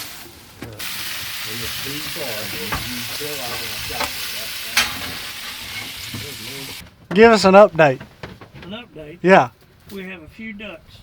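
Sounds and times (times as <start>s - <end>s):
food frying sizzle: 0.0s - 6.8s.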